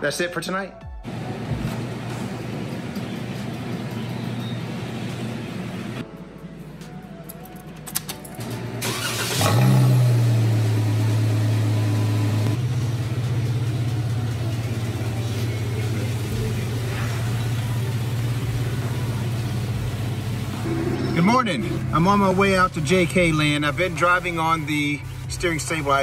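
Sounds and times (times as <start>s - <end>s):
car engine starting and idling: 7.5s - 26.0s
starter motor cranking: 8.8s - 10.3s.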